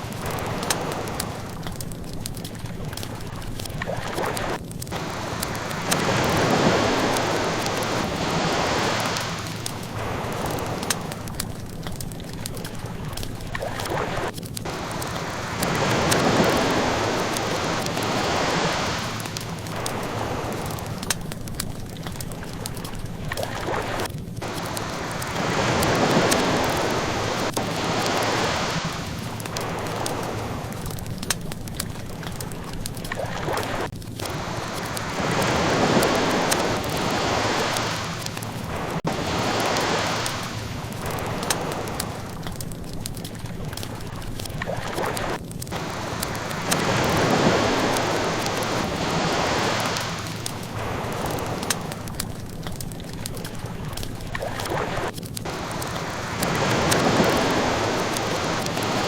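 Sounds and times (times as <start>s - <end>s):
ocean waves washing ashore: 0.0s - 59.0s
wood fire crackling: 0.0s - 59.0s.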